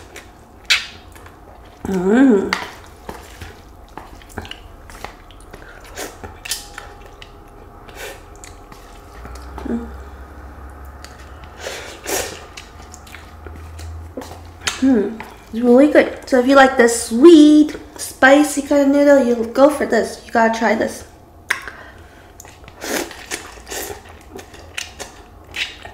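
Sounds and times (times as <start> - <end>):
chewing noodles: 0.0 - 15.6, 22.0 - 25.9
person humming: 1.8 - 2.6, 9.4 - 10.5, 14.7 - 15.3.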